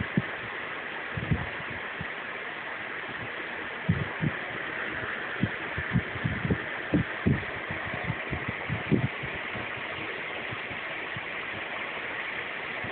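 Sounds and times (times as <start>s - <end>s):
steady hiss: 0.0s - 12.9s
soft low thumps: 3.9s - 4.4s, 5.4s - 9.7s.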